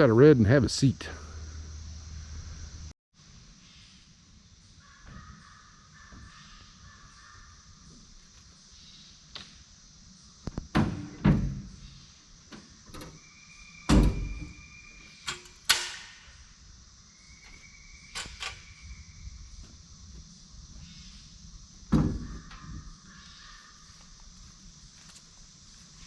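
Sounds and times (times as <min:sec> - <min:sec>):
door thud: 0:10.7 - 0:11.8, 0:13.9 - 0:14.6, 0:21.9 - 0:22.8.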